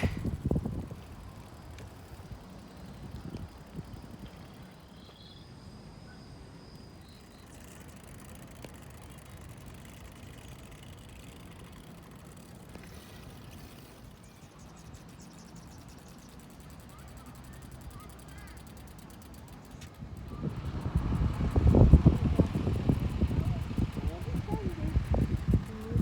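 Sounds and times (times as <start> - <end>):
wind rumble on microphone: 0.0 - 4.7, 20.0 - 26.0
faint high chirps: 1.1 - 8.1.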